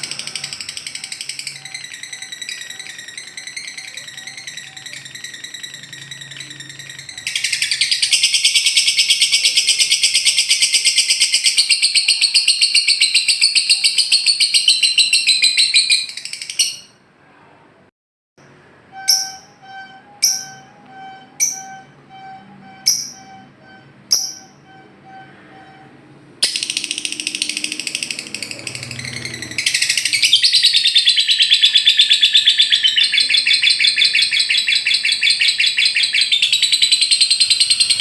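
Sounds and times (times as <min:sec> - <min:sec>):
lovebird chattering trill: 0:00.0 - 0:16.9, 0:26.4 - 0:38.0
sharp bird chirps: 0:00.0 - 0:17.0, 0:19.0 - 0:25.8, 0:26.4 - 0:38.0.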